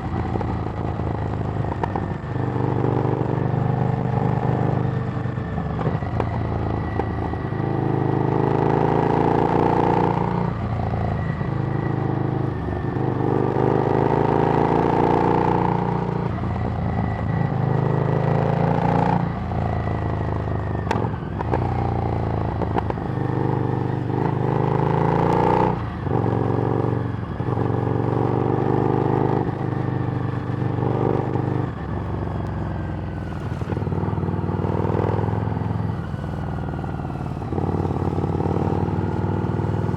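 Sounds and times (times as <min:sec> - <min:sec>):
motorcycle engine revving: 0:20.9 - 0:39.9.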